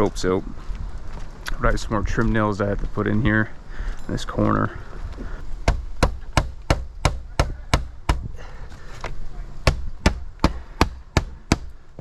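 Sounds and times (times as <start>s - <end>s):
hammer striking nails: 5.6s - 8.3s, 9.7s - 12.0s.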